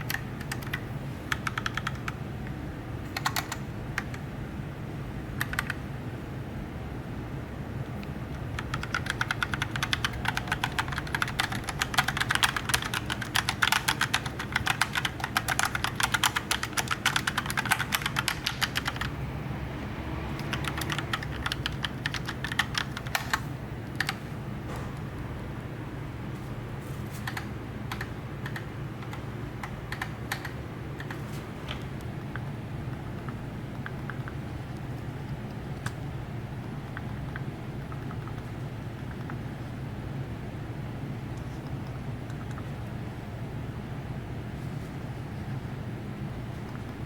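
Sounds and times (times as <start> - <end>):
mechanical keyboard typing: 0.0 - 2.2, 3.1 - 4.2, 5.4 - 5.8, 8.3 - 19.1, 20.4 - 24.2, 27.2 - 36.0, 36.6 - 39.5, 41.6 - 42.7.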